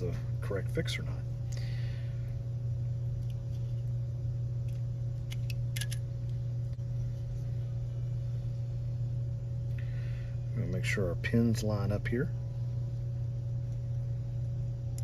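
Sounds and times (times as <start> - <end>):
steady low hum: 0.0 - 15.0
clicks of small electronic parts: 4.7 - 6.0.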